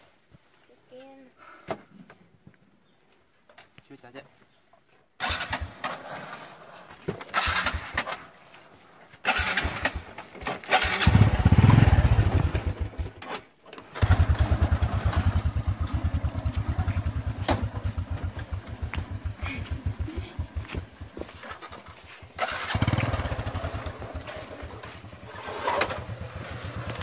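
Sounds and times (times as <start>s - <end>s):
motorcycle engine labouring: 5.2s - 6.0s, 7.2s - 8.2s, 9.2s - 27.0s.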